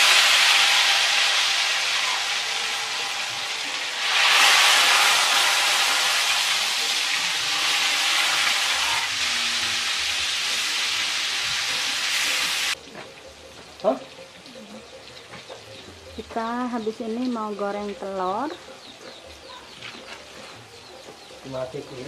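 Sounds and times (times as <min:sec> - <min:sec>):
tofu sizzling in hot oil: 0:00.0 - 0:12.8.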